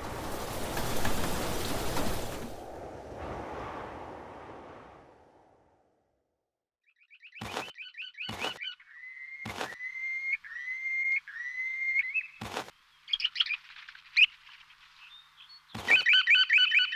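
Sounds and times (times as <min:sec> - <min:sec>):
bird chirping and trilling: 0:06.9 - 0:14.4, 0:15.0 - 0:16.9
sharp clicks: 0:07.4 - 0:07.7, 0:09.5 - 0:09.8, 0:15.8 - 0:16.1.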